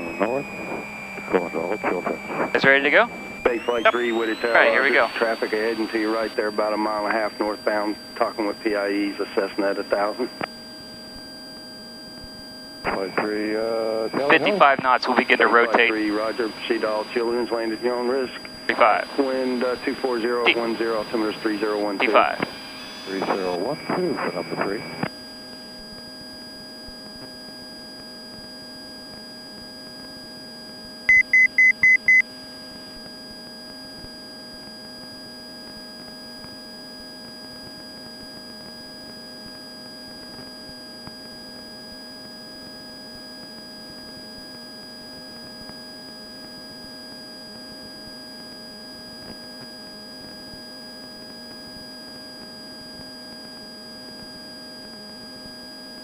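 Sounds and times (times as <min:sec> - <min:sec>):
short high beeps: 0:31.1 - 0:32.2.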